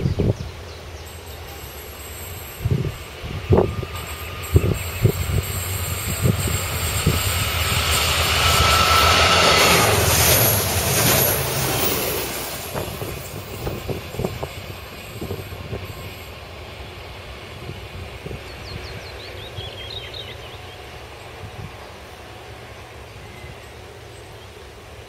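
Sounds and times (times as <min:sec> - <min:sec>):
diesel train passing: 0:00.0 - 0:25.0
faint high whine: 0:00.6 - 0:19.7.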